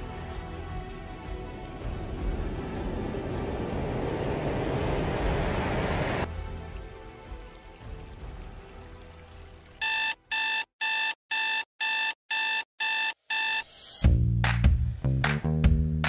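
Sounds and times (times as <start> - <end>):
alarm clock beeping: 9.8 - 13.7.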